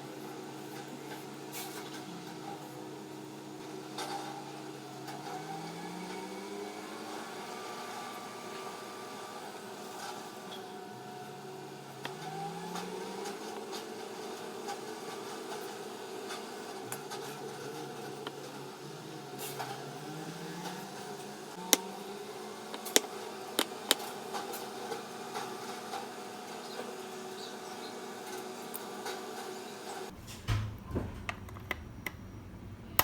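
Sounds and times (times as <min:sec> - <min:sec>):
small electric motor humming: 0:04.4 - 0:30.1.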